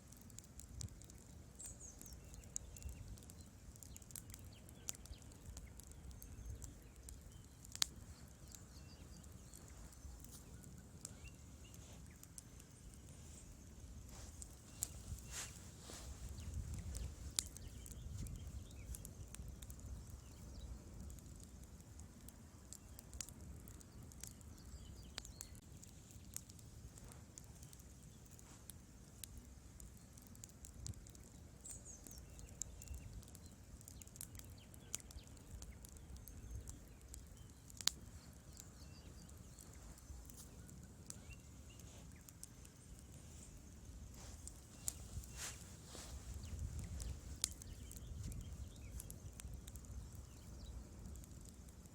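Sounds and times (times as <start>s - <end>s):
crackles and pops from logs: 0.0s - 51.9s
wood fire burning: 0.0s - 51.9s.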